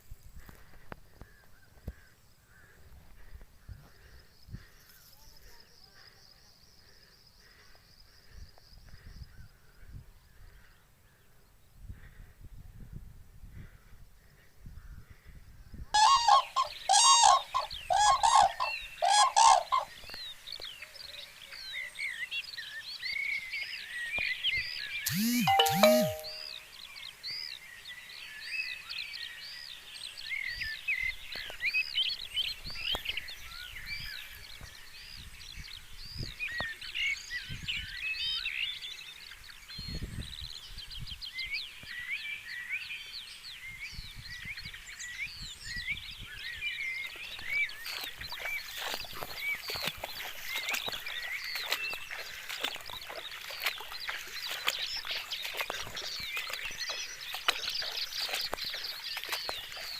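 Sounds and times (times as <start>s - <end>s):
chorus of high chirping calls: 16.0s - 19.9s, 25.1s - 26.5s.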